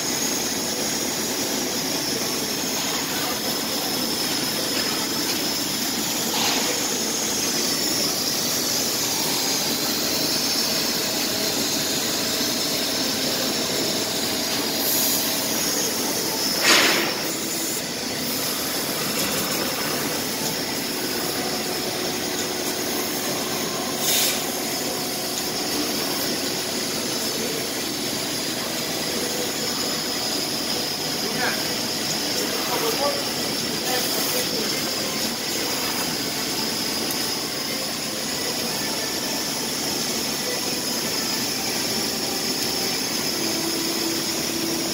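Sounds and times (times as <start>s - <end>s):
laser cutter hiss and whine: 0.0s - 44.9s
laser cutter loud burst: 14.9s - 20.4s.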